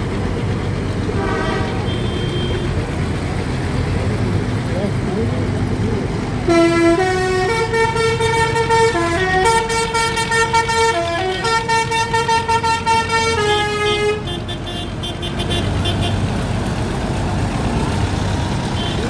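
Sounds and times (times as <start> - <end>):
engines rumbling: 0.0 - 19.0
musical vehicle horn playing tune: 1.1 - 2.8, 6.4 - 16.2.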